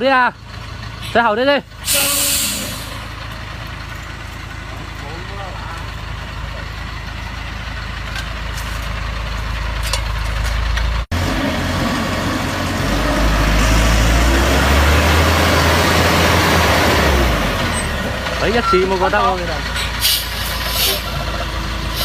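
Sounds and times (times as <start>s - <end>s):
heavy truck engine running: 0.0s - 22.0s.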